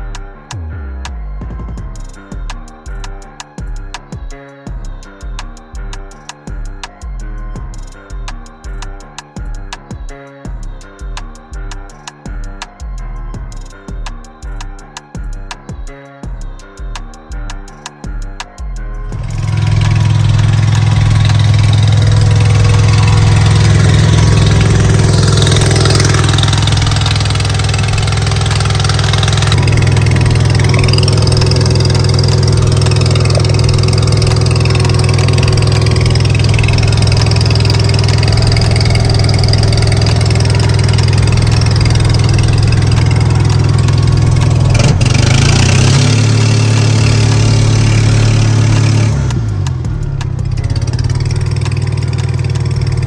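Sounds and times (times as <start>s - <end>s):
skid steer engine running: 19.0s - 53.0s.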